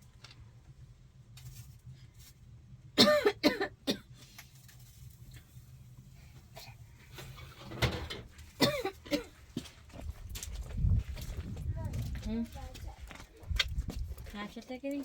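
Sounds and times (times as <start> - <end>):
low steady hum: 0.0 - 15.0
person coughing: 3.0 - 4.1, 8.6 - 9.3.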